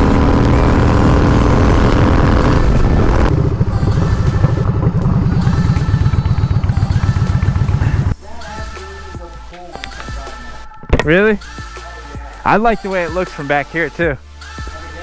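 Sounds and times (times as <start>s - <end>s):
wind noise on microphone: 0.0s - 8.1s
motorcycle engine rumbling: 0.0s - 8.3s.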